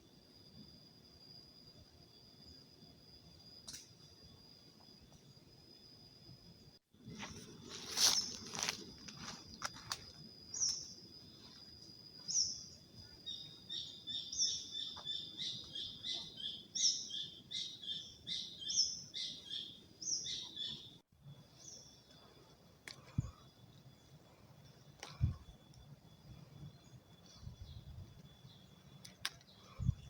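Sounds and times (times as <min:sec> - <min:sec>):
rapid bird chirping: 0:12.2 - 0:22.3.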